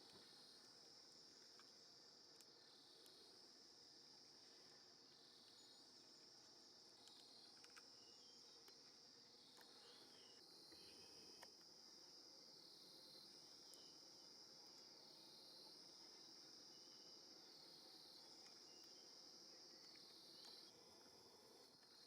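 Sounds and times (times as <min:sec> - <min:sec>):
high-pitched insect chorus: 0:00.0 - 0:22.0
faint bird chirps: 0:07.0 - 0:08.8, 0:09.4 - 0:11.4, 0:13.6 - 0:14.0.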